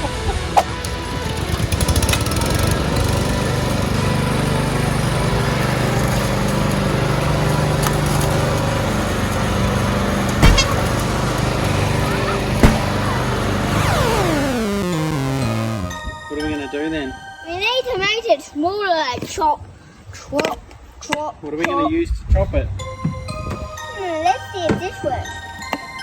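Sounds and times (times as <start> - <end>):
lawn mower engine running: 0.7 - 15.9
sharp knock: 10.4 - 10.8, 12.6 - 13.0.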